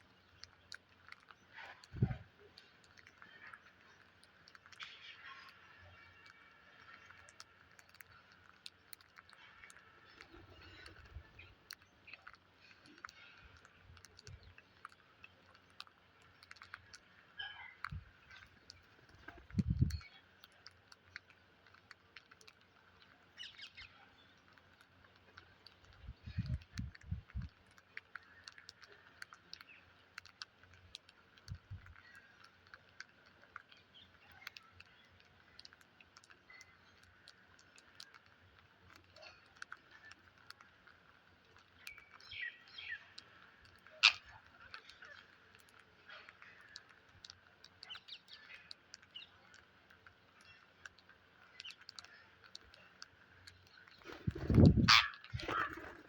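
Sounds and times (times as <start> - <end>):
small clicks and taps: 0.0 - 56.0
parrots chirping: 44.0 - 44.3, 54.1 - 56.0.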